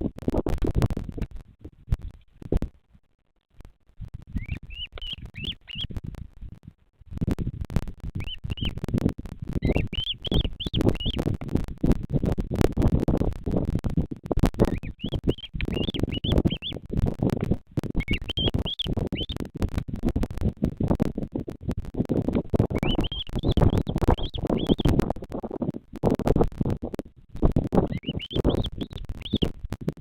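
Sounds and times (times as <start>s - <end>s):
crackling and rustling: 0.0s - 30.0s
bird chirping: 4.3s - 6.0s, 8.2s - 8.8s, 9.6s - 11.3s, 14.6s - 16.8s, 18.0s - 19.4s, 22.7s - 25.0s, 27.8s - 29.5s.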